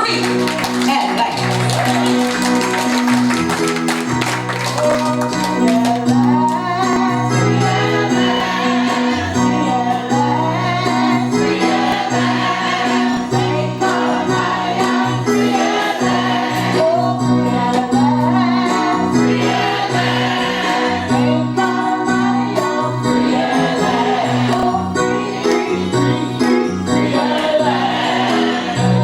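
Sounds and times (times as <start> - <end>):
gospel choir singing: 5.4 - 29.0.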